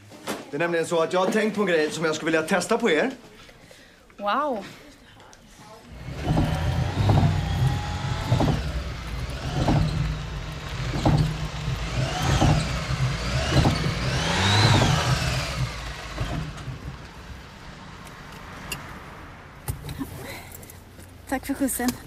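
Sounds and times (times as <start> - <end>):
car engine running: 5.9 - 19.0.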